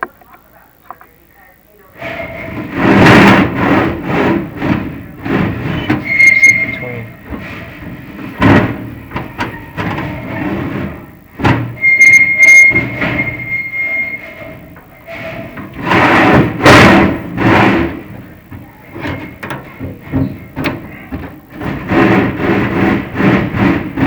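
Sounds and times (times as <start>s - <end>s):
high squeal: 2.0s - 2.7s, 5.6s - 7.9s, 11.7s - 16.2s
rod scraping inside metal flue: 2.0s - 24.0s.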